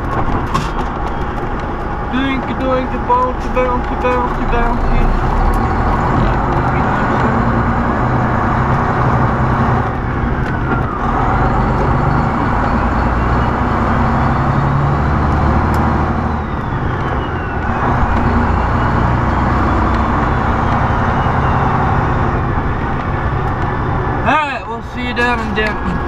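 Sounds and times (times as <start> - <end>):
diesel truck engine running: 0.0 - 26.0
road noise inside cab: 0.0 - 26.0
man talking: 2.1 - 5.2, 6.0 - 7.5, 24.2 - 26.0.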